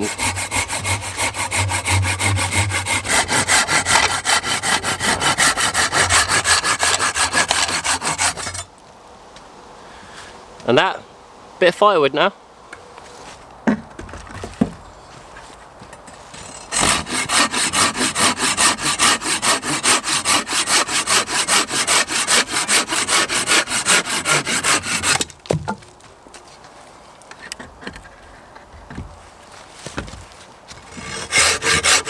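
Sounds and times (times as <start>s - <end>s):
hand saw cutting wood: 0.0s - 8.7s, 16.3s - 25.3s, 30.7s - 32.0s
light knocks of wood: 29.8s - 30.3s.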